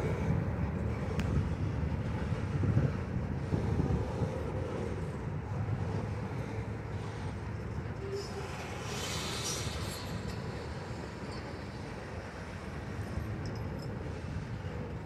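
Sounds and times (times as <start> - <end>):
freight cars rumbling: 0.0 - 15.0
brief hiss: 8.3 - 10.4.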